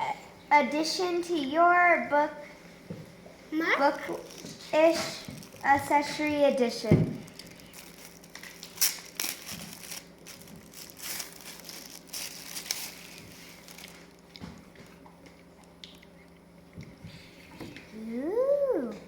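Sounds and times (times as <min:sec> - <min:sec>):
paper and packaging crinkling: 0:04.0 - 0:15.0.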